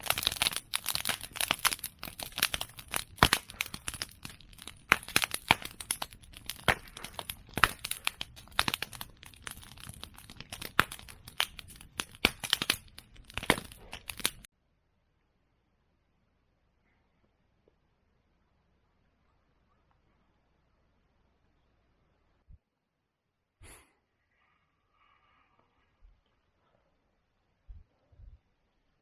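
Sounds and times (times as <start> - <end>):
bonfire crackling and popping: 0.0 - 14.5.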